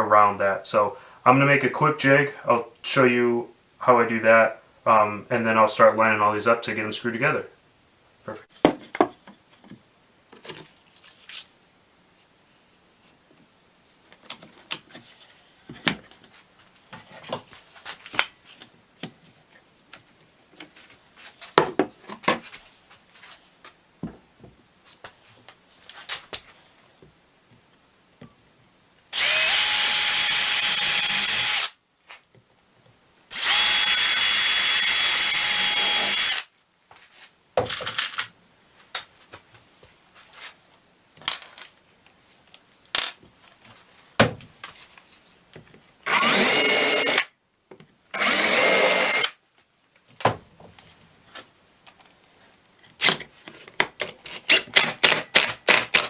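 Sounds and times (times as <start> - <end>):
power drill driving screws into wood: 29.2 - 31.7, 33.3 - 36.5, 46.1 - 47.3, 48.2 - 49.4, 54.3 - 56.0
wooden pieces knocking and clattering: 41.2 - 41.7, 43.0 - 43.2.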